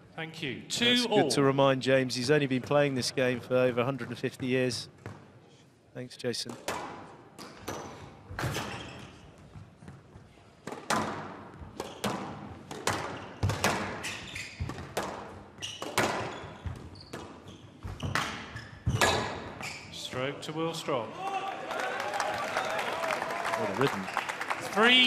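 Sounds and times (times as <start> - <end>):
squash ball hitting rackets and walls: 6.5 - 19.6.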